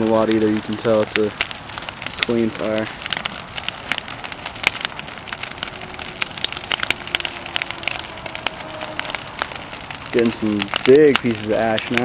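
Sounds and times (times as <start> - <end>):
bonfire crackling and popping: 0.0 - 12.0
rush of flame: 0.0 - 12.0.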